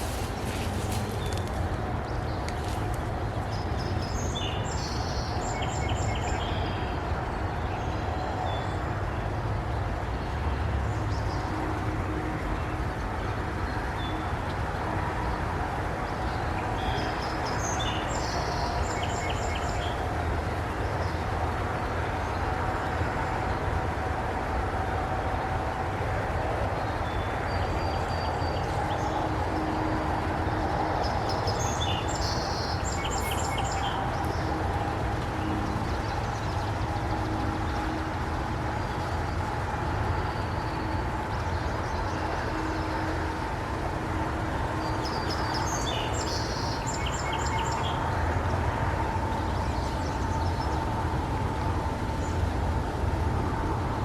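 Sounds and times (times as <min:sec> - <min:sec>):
songbird singing: 0:00.0 - 0:07.0, 0:16.2 - 0:20.0, 0:26.8 - 0:38.0, 0:44.8 - 0:48.1
river rushing: 0:12.3 - 0:54.0.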